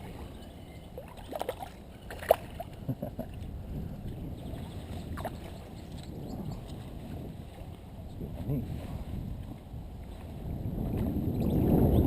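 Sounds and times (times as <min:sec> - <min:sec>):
water sloshing and lapping: 0:00.0 - 0:11.8
sharp water splashes: 0:01.0 - 0:02.8.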